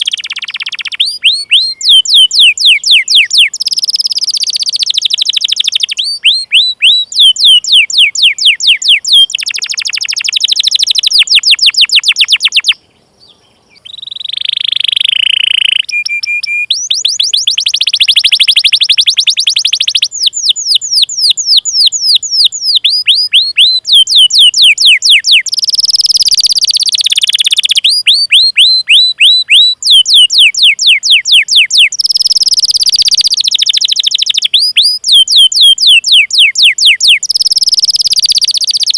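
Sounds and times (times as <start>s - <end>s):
canary singing trilled song: 0.0s - 38.9s.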